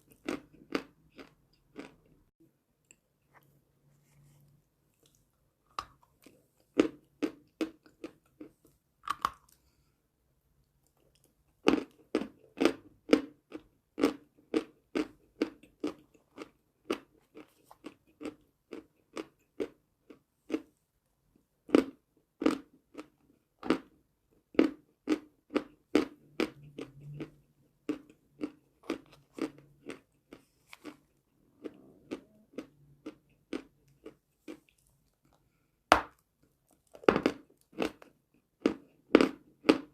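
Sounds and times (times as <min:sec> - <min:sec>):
chewing crunchy chalk: 0:25.5 - 0:35.4.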